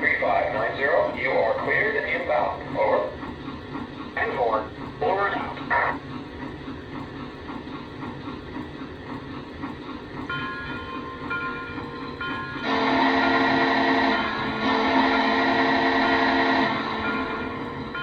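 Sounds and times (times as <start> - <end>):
pulsing model train running sound: 0.0 - 18.0
multi-tone train whistle: 12.5 - 18.0.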